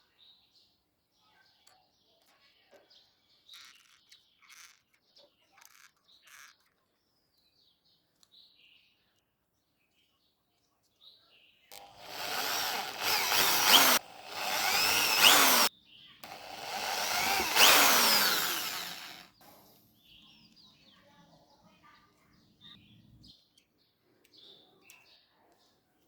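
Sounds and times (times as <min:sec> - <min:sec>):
small power tool whirring: 0:11.7 - 0:19.8.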